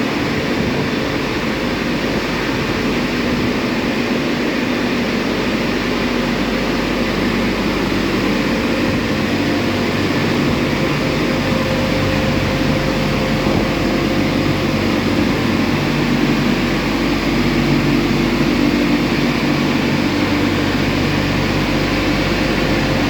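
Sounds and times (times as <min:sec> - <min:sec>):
car wash drying blowers rushing air: 0:00.0 - 0:23.0.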